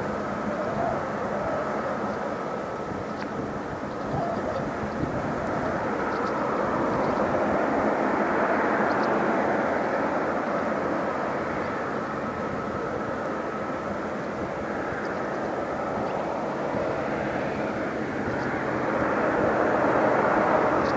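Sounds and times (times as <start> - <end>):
heavy truck passing: 15.2 - 20.9.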